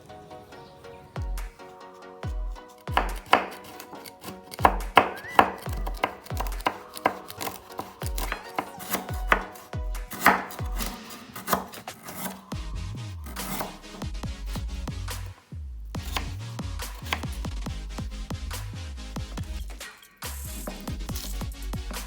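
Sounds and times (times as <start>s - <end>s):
background music with beat: 0.0s - 22.0s
knife chopping on cutting board: 2.8s - 12.4s, 13.4s - 13.8s.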